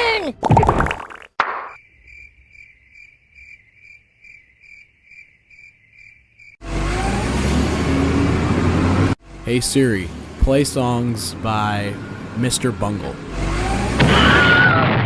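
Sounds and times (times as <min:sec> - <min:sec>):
cricket chirps: 0:01.7 - 0:06.6
car driving with rising whine: 0:06.5 - 0:14.5.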